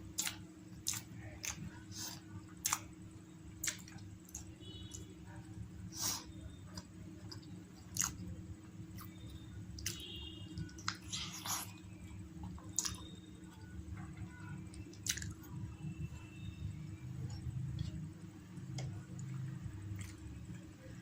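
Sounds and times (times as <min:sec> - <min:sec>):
steady low hum: 0:00.0 - 0:21.0
person chewing food: 0:00.2 - 0:02.9, 0:03.6 - 0:05.0, 0:06.0 - 0:08.2, 0:09.8 - 0:13.6, 0:14.9 - 0:15.4, 0:18.8 - 0:20.2.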